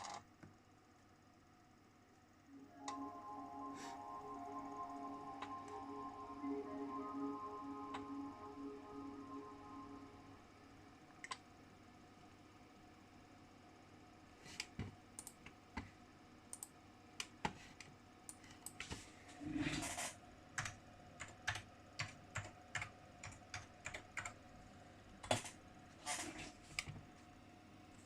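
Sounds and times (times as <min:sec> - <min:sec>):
computer keyboard typing: 0:20.6 - 0:24.4.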